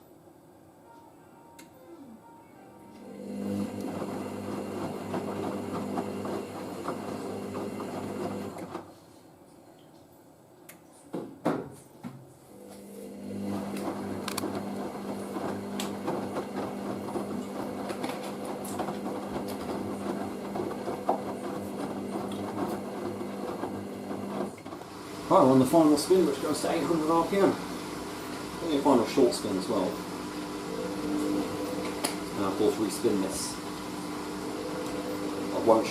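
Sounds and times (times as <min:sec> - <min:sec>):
washing machine motor humming: 0:03.0 - 0:08.9, 0:12.6 - 0:35.9.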